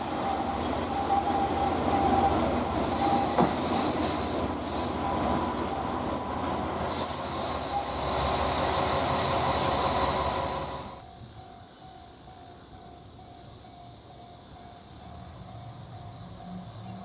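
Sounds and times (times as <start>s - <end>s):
train running gear rumbling: 0.0s - 17.0s
train wheels squealing: 0.0s - 17.0s.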